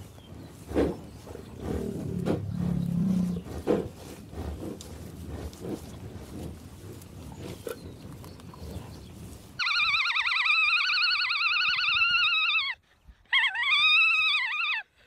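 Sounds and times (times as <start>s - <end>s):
alpaca calling: 9.6s - 14.9s.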